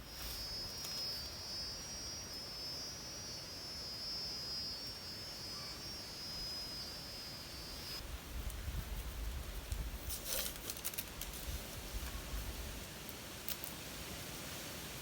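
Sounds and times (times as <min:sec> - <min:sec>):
insect buzzing: 0:00.0 - 0:13.8.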